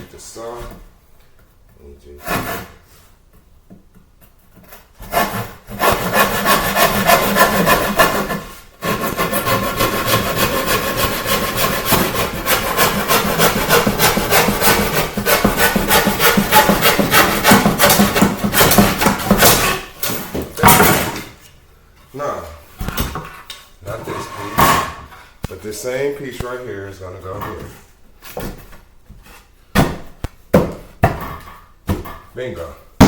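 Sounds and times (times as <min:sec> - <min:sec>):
hand saw cutting wood: 0:02.2 - 0:02.8, 0:04.7 - 0:21.1.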